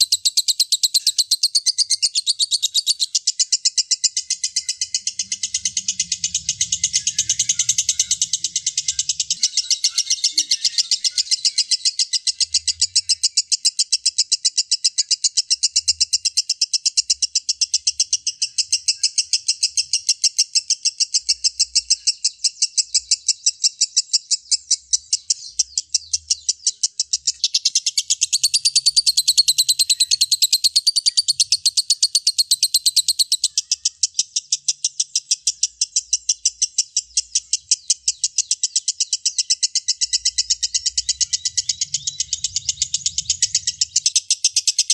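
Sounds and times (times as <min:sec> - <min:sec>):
bird high chattering notes: 0:04.1 - 0:13.0, 0:25.0 - 0:34.8, 0:35.7 - 0:44.9.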